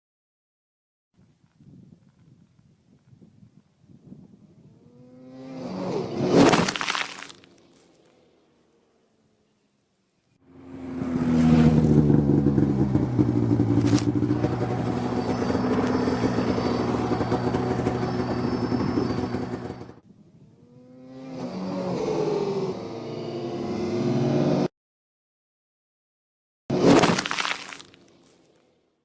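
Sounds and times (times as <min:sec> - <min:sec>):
snowmobile engine running: 0:10.5 - 0:20.0.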